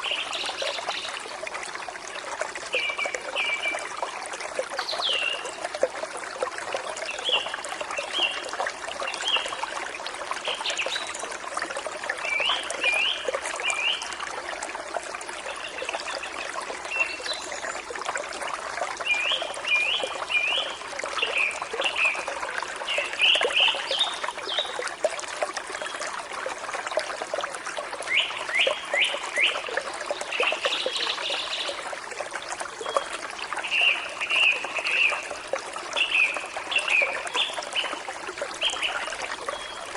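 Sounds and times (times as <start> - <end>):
stream trickling and splashing: 0.0 - 39.9
songbirds chirping: 32.8 - 39.9.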